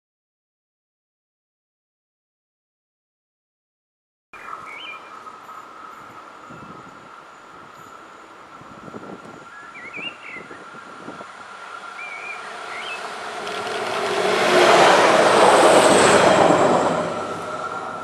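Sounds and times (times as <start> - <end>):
railcar passing by: 4.4 - 18.0.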